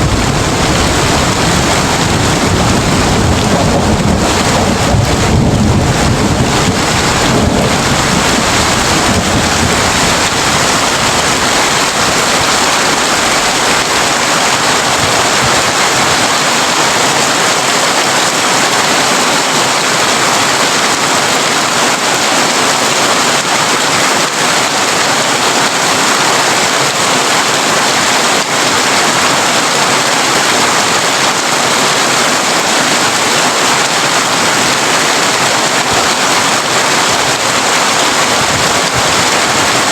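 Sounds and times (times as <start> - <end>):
thunder rumbling: 0.0 - 16.5
heavy rain on a tin roof: 0.0 - 39.9.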